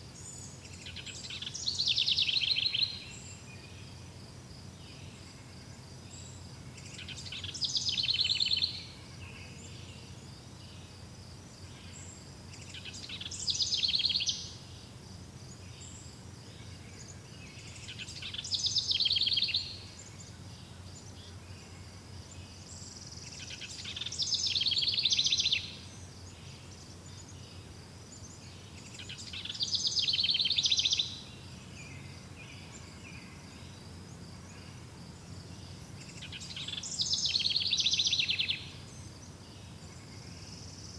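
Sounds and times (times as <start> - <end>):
songbird trilling: 12.8 - 14.6, 23.4 - 25.9, 29.0 - 31.3, 36.1 - 38.8.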